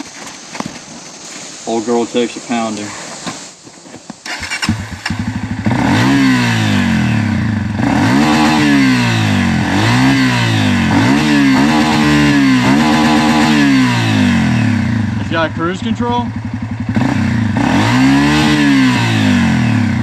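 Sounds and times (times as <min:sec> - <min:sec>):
dirt bike engine revving: 0:04.2 - 0:20.0.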